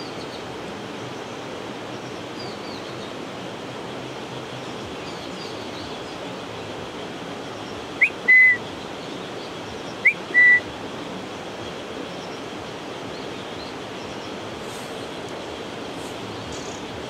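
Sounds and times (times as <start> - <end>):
bird whistling: 8.0 - 8.6, 10.0 - 10.7.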